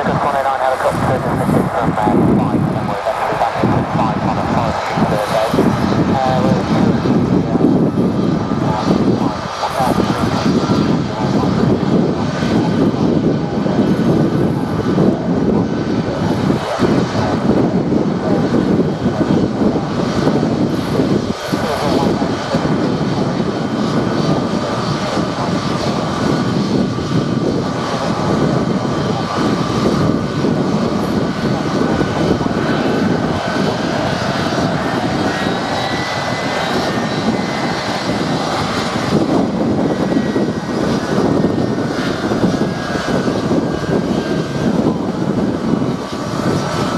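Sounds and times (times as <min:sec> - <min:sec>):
jet engines rumbling with whine: 0:00.0 - 0:46.9.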